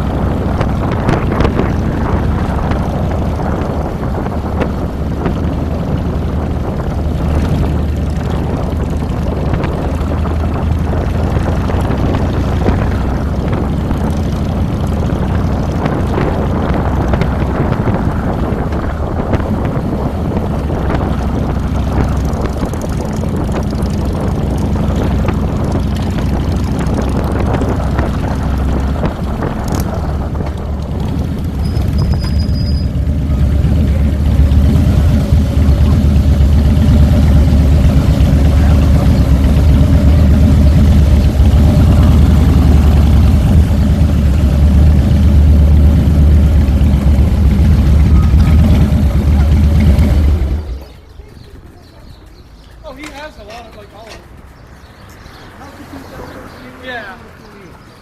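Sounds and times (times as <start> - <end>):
motorcycle engine drone: 0.0 - 58.0.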